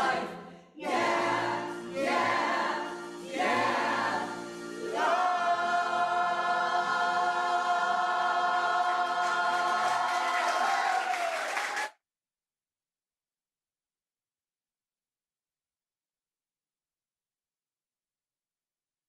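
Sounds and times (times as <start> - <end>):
choir singing: 0.0 - 10.9.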